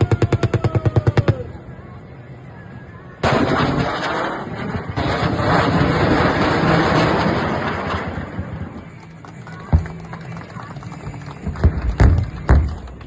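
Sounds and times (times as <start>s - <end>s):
heavy explosions with rumbling: 3.2s - 8.8s.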